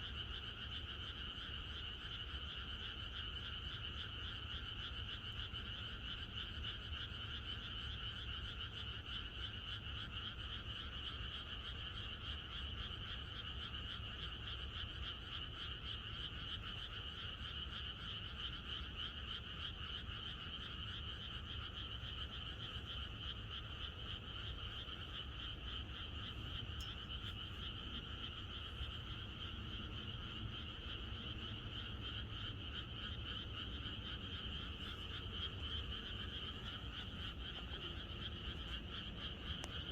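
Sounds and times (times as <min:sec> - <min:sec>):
frogs croaking chorus: 0:00.0 - 0:39.9
steady low rumble: 0:22.7 - 0:39.9.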